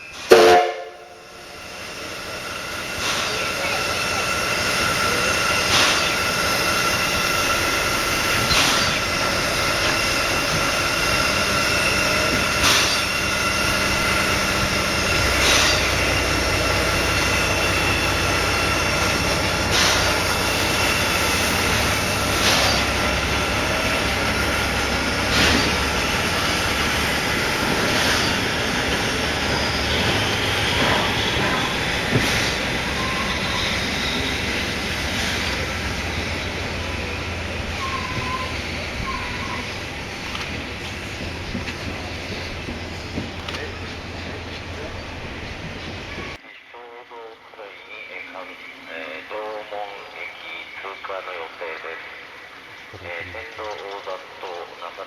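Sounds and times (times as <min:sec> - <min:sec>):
train running on rails: 0:00.0 - 0:55.0
high-pitched ringing squeal: 0:01.0 - 0:39.9
sharp rail clicks: 0:03.0 - 0:17.5, 0:39.6 - 0:46.3.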